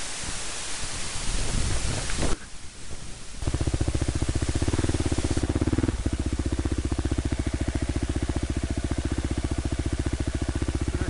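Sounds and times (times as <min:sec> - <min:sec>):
motorcycle engine idling: 0:03.4 - 0:11.0.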